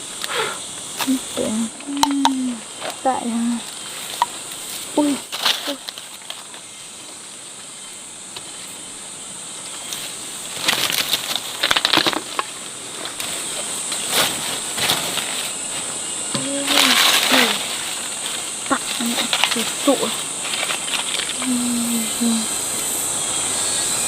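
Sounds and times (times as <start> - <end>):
high-pitched insect buzz: 0.0 - 11.6, 12.4 - 24.0
rustling and clicking: 0.9 - 6.7, 9.7 - 22.0.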